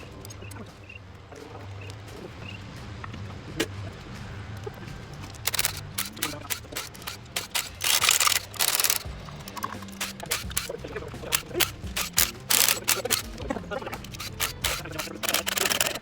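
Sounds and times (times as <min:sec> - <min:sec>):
metallic tool clicking: 0:05.5 - 0:16.0.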